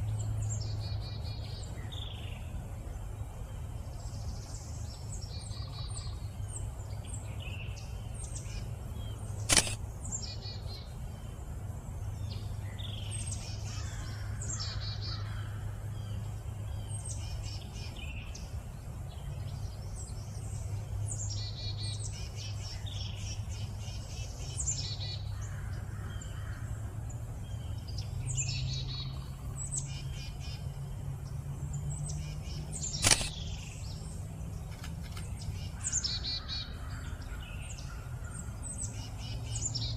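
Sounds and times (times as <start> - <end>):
songbirds chirping: 0.0 - 39.9
sharp clicks: 9.4 - 9.8, 32.9 - 33.4, 34.7 - 35.3.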